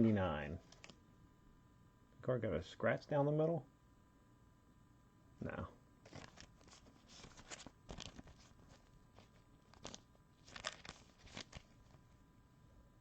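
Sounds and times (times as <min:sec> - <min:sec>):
card packaging crinkling: 0:00.6 - 0:01.0, 0:06.1 - 0:12.2.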